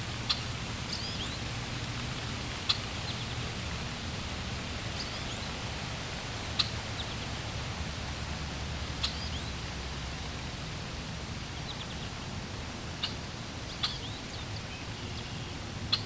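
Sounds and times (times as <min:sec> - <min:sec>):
flowing water: 0:00.0 - 0:16.0
birds chirping: 0:06.5 - 0:07.2, 0:08.9 - 0:09.7, 0:13.0 - 0:16.0.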